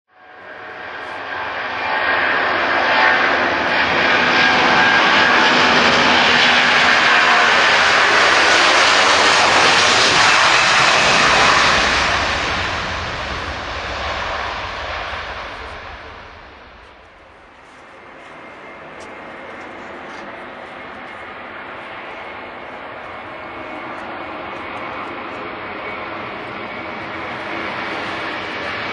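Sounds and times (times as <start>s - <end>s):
jet airliner taking off: 0.2s - 28.9s.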